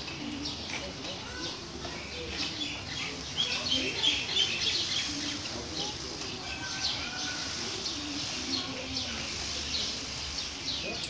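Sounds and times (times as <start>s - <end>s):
low background murmur: 0.0s - 11.0s
small birds chirping: 0.0s - 11.0s.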